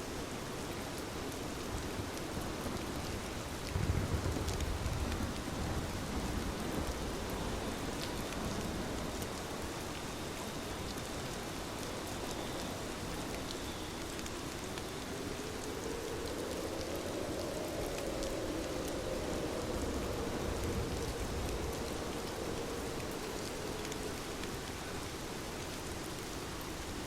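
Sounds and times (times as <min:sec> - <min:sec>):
heavy rain falling: 0:00.0 - 0:27.0
raindrops ticking on a surface: 0:00.0 - 0:27.0
distant thunder rumble: 0:03.7 - 0:09.2, 0:16.2 - 0:24.7.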